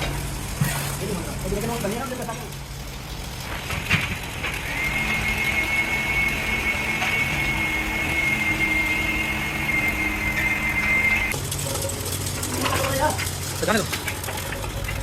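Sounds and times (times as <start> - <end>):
machinery high-pitched whine: 4.7 - 11.4
machinery low hum: 4.7 - 11.4.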